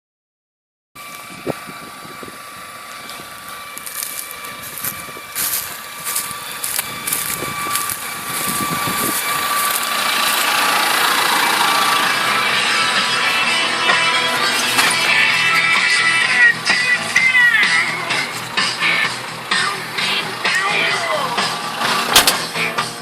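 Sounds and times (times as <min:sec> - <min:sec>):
tractor diesel engine whining: 0:01.0 - 0:23.0
rattles and clicks: 0:21.8 - 0:22.6.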